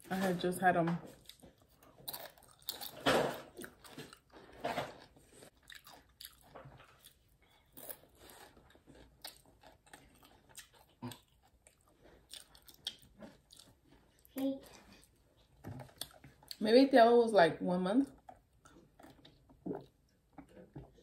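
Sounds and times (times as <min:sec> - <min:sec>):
chewing crunchy chip: 0:01.2 - 0:14.3.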